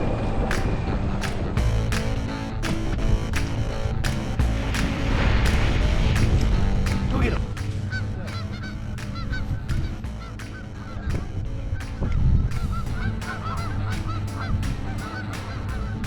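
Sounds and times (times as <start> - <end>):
geese honking: 4.3 - 16.0.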